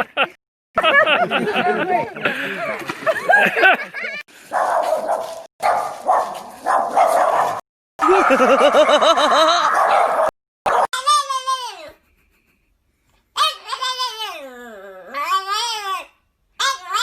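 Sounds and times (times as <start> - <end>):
dog barking and yipping: 4.5 - 11.0.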